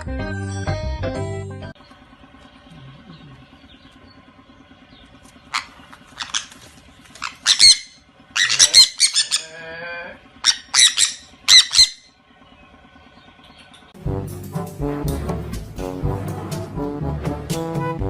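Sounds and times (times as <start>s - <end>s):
animal squawking: 5.4s - 12.2s.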